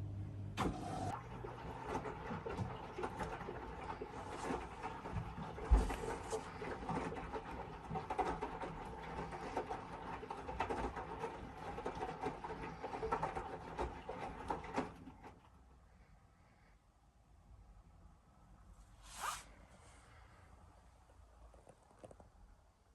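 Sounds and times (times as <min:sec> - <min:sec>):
washing machine motor hum: 0:00.0 - 0:15.7
laundry tumbling in drum: 0:01.1 - 0:15.4.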